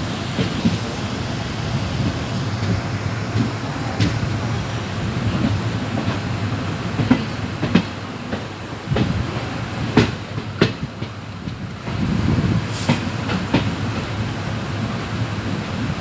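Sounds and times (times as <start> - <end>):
train wheels rumbling on rails: 0.0 - 16.0
wheels clacking on rail joints: 5.3 - 12.2, 12.8 - 14.2.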